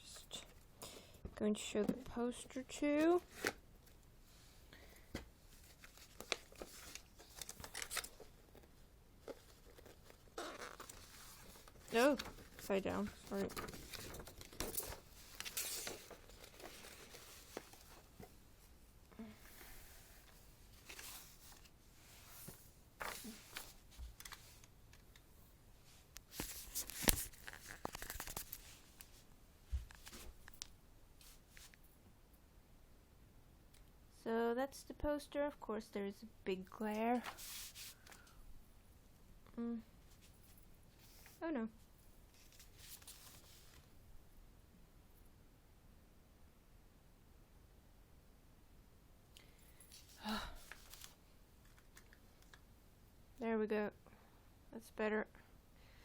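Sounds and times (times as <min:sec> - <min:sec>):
paper rustling and crinkling: 0:05.5 - 0:18.3, 0:19.5 - 0:24.8, 0:26.3 - 0:31.8, 0:37.1 - 0:38.4, 0:42.3 - 0:43.9, 0:49.9 - 0:52.6
sharp paper crackle: 0:05.6 - 0:08.3, 0:26.3 - 0:28.8.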